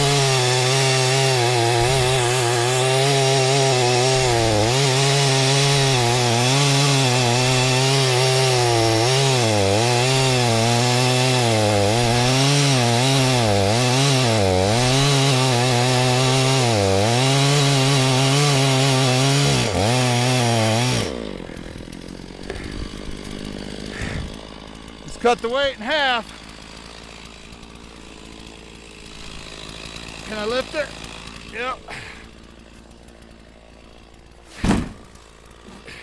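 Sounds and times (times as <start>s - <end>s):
chainsaw cutting wood: 0.0s - 36.0s.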